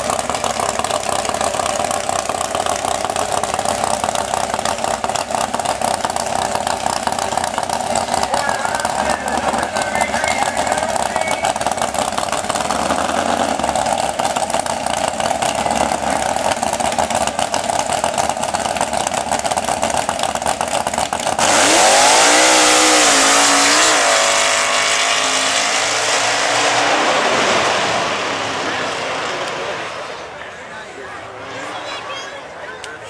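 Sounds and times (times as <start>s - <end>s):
truck engine running lumpy: 0.0s - 33.0s
engine revving: 7.0s - 14.2s, 21.2s - 30.3s.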